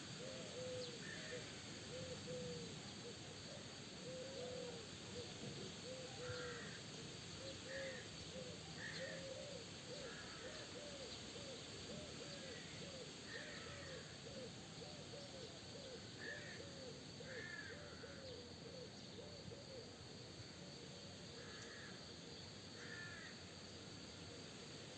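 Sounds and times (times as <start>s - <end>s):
soft hiss: 0.0s - 24.9s
low hoot-like bird calls: 0.2s - 2.7s.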